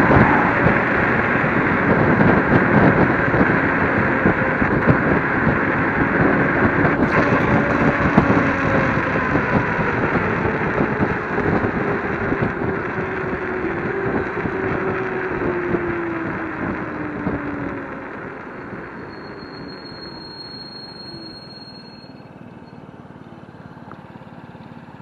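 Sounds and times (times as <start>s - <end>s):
wind buffeting microphone: 0.0s - 19.7s
faint electric motor whine: 0.0s - 22.2s
road noise: 0.0s - 25.0s.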